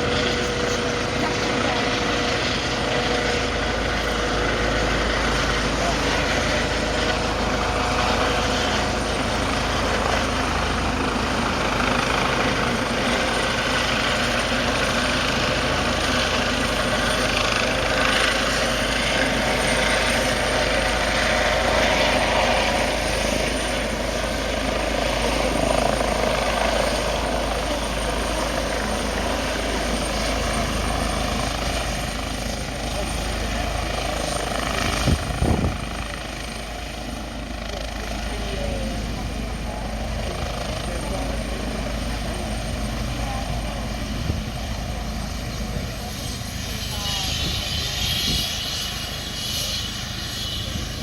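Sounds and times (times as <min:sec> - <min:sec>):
helicopter rotor and engine noise: 0:00.0 - 0:51.0
high turbine whine: 0:00.0 - 0:51.0.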